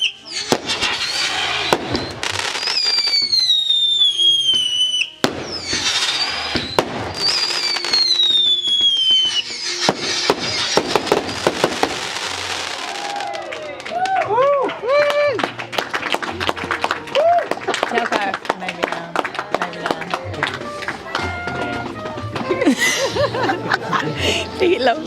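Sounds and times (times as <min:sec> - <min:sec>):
falling firework whistles: 0:00.0 - 0:13.4
fireworks crackling: 0:00.0 - 0:14.1
music: 0:00.0 - 0:25.0
fireworks bangs: 0:00.3 - 0:13.4.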